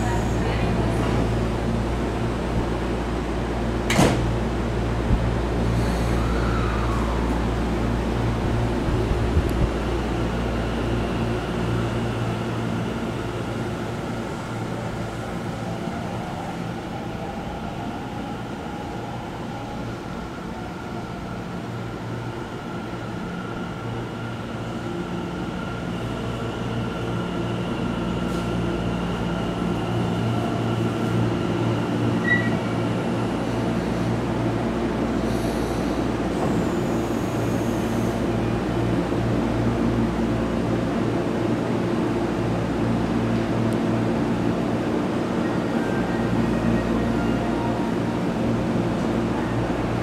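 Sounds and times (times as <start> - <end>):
electric train pulling in: 0.0 - 50.0.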